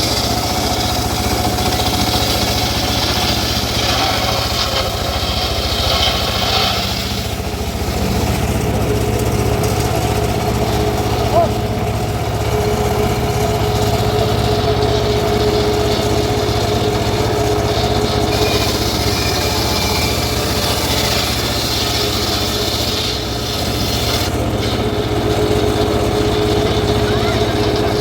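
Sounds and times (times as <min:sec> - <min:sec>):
circular sawmill cutting wood: 0:00.0 - 0:28.0.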